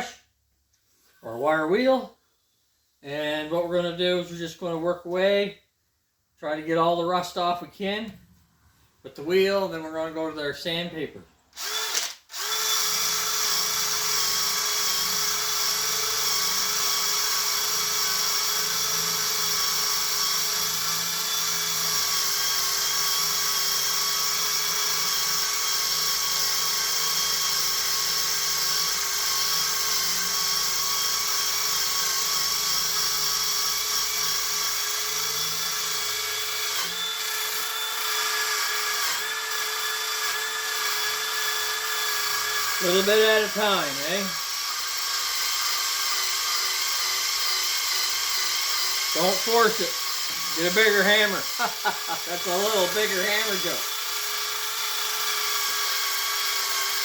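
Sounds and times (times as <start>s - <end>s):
power tool wire wheel whining: 11.5s - 57.0s.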